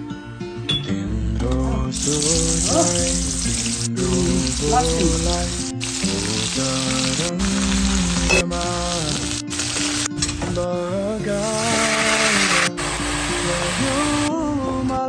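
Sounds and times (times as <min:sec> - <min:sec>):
background music with melody: 0:00.0 - 0:15.0
food sizzling in hot oil: 0:01.9 - 0:10.1, 0:11.5 - 0:14.3.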